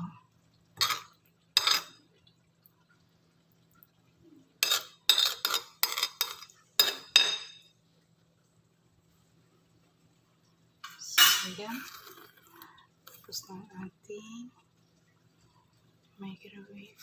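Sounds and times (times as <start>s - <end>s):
cutlery clinking on a plate: 0.8s - 2.0s, 4.6s - 7.6s.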